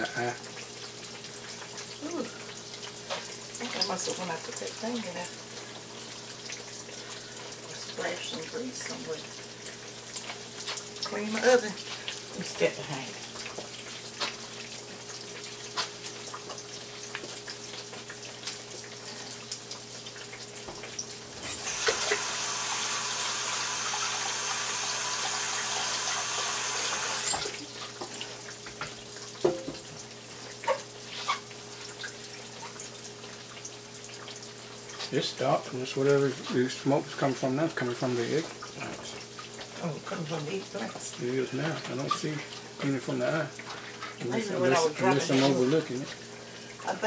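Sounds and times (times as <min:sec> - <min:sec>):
eggplant frying in oil: 0:00.0 - 0:47.0
tap running: 0:20.2 - 0:30.1.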